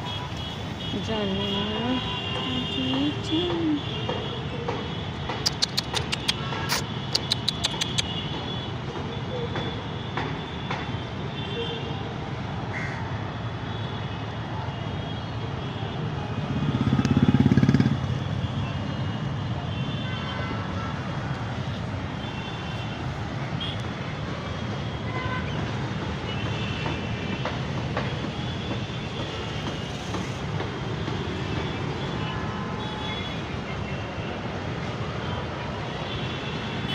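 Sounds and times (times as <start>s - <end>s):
busy road traffic: 0.0s - 36.9s.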